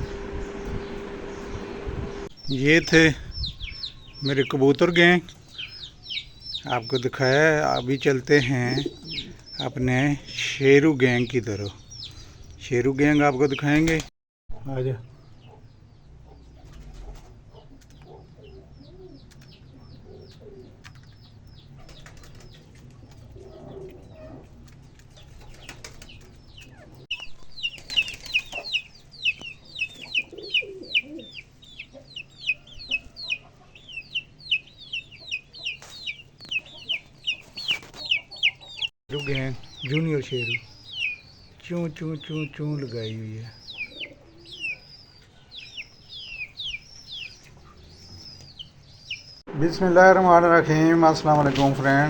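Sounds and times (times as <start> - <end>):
lower bird calls: 0.0 - 10.6, 25.4 - 50.8
chicks peeping: 0.0 - 52.0.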